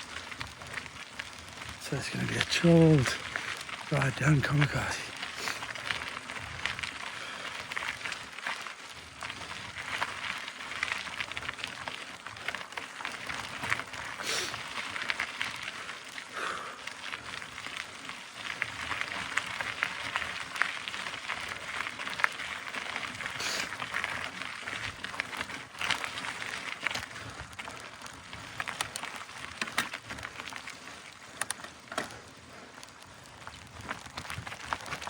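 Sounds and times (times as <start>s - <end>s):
bike tyres crunching on dirt: 0.0s - 35.0s
bike clicks and knocks: 28.6s - 30.6s, 31.3s - 32.3s.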